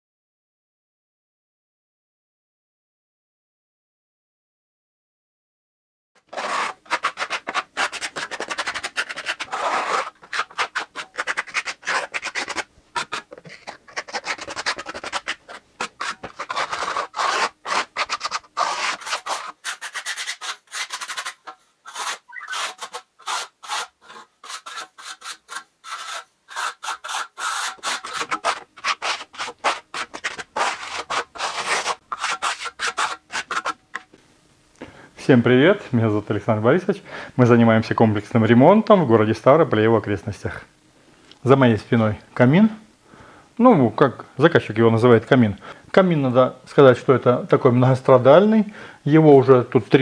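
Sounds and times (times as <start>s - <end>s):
hand tool scraping masonry: 6.2s - 34.2s.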